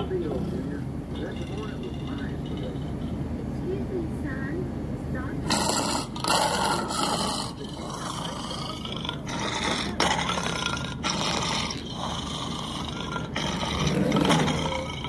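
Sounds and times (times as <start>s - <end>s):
cartoon seal growls and roars: 5.5s - 15.0s.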